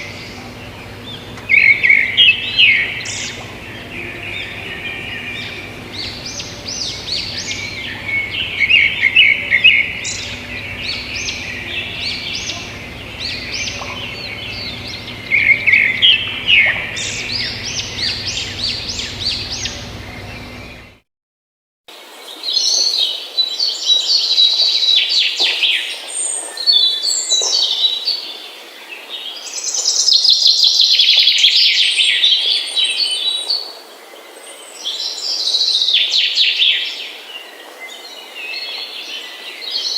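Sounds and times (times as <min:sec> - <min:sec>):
birds chirping and singing: 0:00.0 - 0:21.0.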